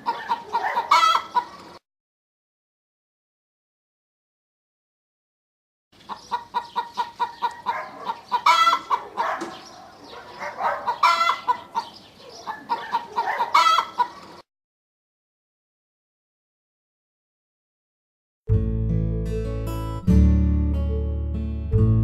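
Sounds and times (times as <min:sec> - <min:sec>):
hen clucking and squawking: 0:00.0 - 0:01.8, 0:06.0 - 0:14.4.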